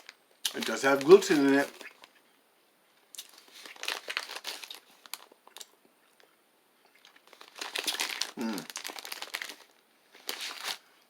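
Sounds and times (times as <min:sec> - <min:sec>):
plastic wrapper crinkling: 0:00.0 - 0:02.2, 0:03.1 - 0:05.8, 0:07.0 - 0:10.8.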